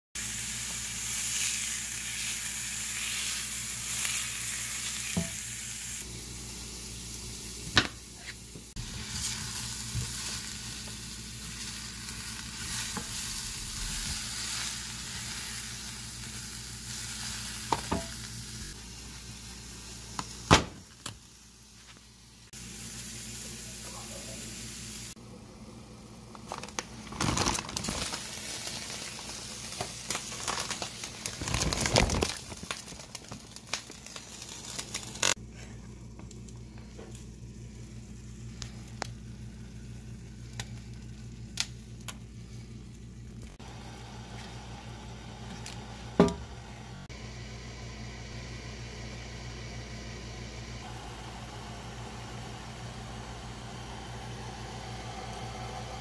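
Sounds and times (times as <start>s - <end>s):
onions and mushrooms sizzling: 0.2s - 56.0s.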